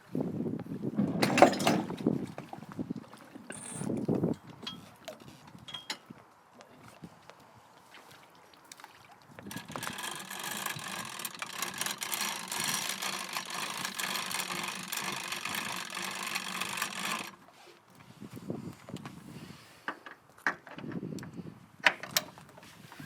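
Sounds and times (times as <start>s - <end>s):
motor running with steady tones: 3.5s - 3.9s, 9.5s - 17.4s.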